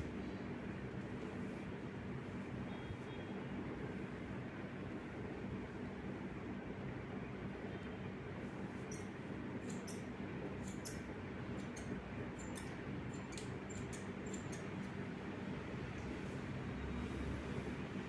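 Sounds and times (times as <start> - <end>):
low background hum: 0.0 - 18.0
scissors snipping hair: 8.9 - 15.0.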